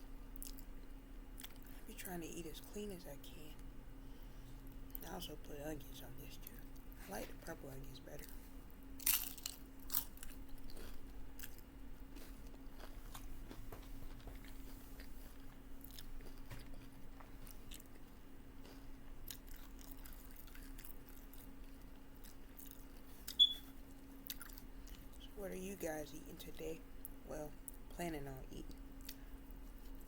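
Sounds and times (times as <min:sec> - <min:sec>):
steady low hum: 0:00.0 - 0:30.0
chewing crisp food: 0:00.3 - 0:01.9, 0:08.2 - 0:25.4, 0:28.6 - 0:30.0.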